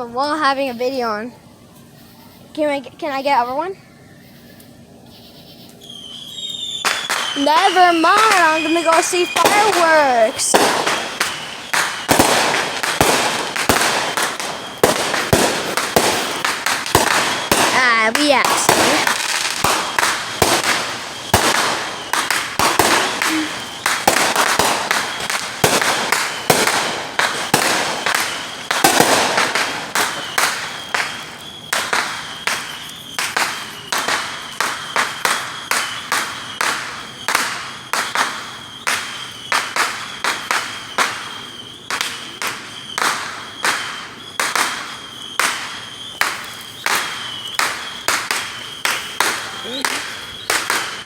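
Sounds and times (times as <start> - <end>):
fireworks bangs: 0.0 - 3.8, 5.7 - 51.0
thin high tone: 0.0 - 11.6.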